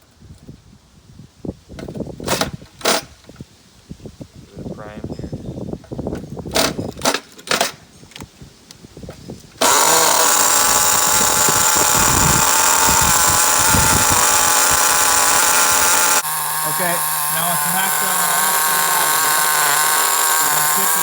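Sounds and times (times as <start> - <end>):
model engine high buzzing: 9.6 - 21.0.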